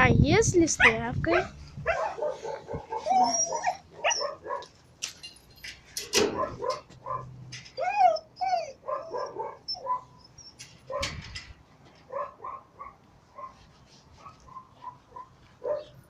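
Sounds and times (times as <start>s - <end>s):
dog whining yelps: 0.8s - 4.7s, 6.3s - 11.2s
dog barking and yelping: 0.8s - 4.8s, 6.2s - 11.2s, 12.0s - 16.0s.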